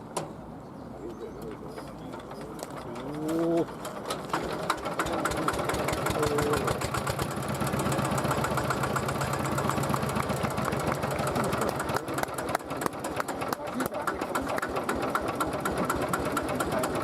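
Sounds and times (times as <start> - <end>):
diesel engine idling: 1.5 - 17.0.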